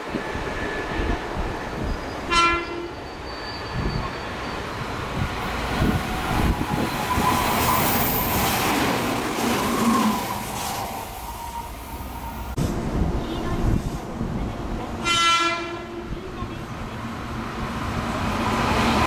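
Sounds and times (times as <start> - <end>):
train wheels on rails: 0.0 - 15.1
train horn toot: 2.3 - 3.0, 15.0 - 16.1.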